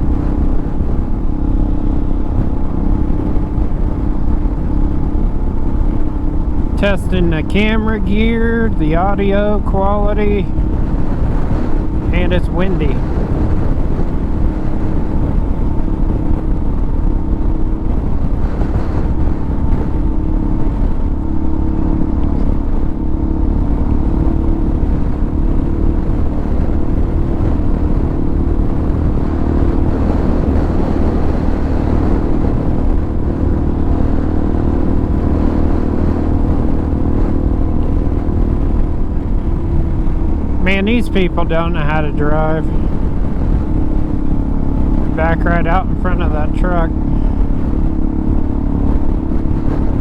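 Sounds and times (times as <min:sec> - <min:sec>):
motorcycle engine cruising: 0:00.0 - 0:50.0
wind noise on microphone: 0:00.0 - 0:50.0.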